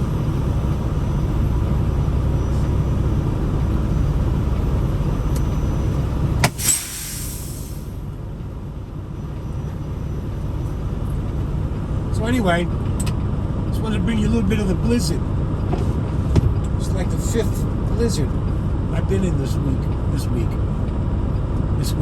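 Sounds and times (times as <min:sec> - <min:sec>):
truck engine low rumble: 0:00.0 - 0:22.0
sharp click: 0:06.4 - 0:06.9
air hiss burst: 0:06.4 - 0:08.0.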